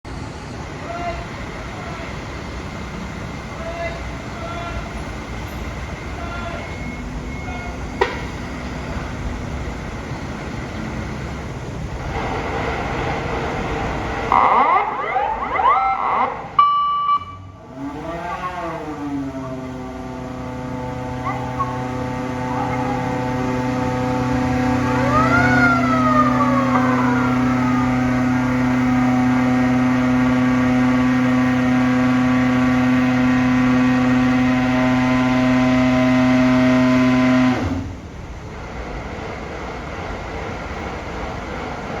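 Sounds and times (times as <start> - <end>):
loud steady engine drone: 0.0 - 42.0
siren wail: 13.8 - 37.9.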